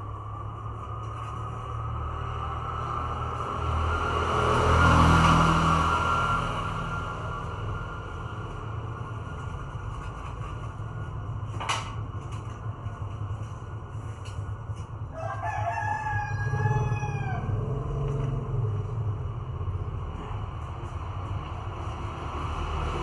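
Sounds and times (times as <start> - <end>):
steady low hum: 6.6 - 15.4, 16.0 - 23.0
rooster crowing: 15.1 - 18.4.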